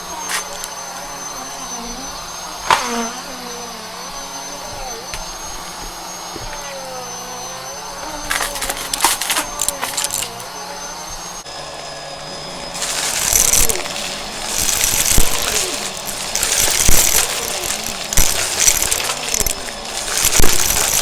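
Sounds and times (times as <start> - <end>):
vacuum cleaner whining: 0.0 - 21.0
rattling clicks: 8.3 - 10.4, 12.8 - 21.0.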